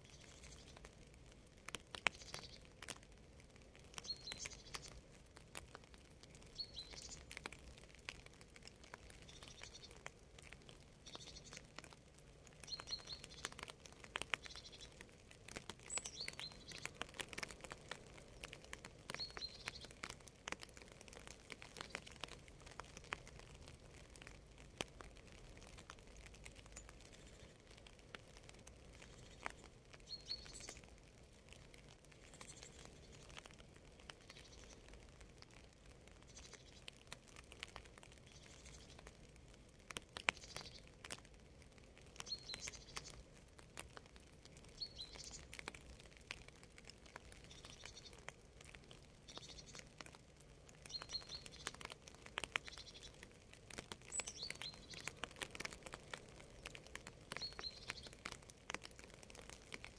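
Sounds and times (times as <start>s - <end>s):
small bird chirping: 0.0s - 0.9s, 1.9s - 2.7s, 4.0s - 5.0s, 6.3s - 7.5s, 8.9s - 10.1s, 11.0s - 11.9s, 12.5s - 15.0s, 15.7s - 18.5s, 19.1s - 20.2s, 26.6s - 27.8s, 28.9s - 30.9s, 32.2s - 33.4s, 34.2s - 35.0s, 36.2s - 37.0s, 37.7s - 39.1s, 40.3s - 40.9s, 42.2s - 43.2s, 44.6s - 45.6s, 47.3s - 50.1s, 50.8s - 53.2s, 54.0s - 55.7s, 56.3s - 58.4s
faint rain dripping: 0.0s - 59.9s.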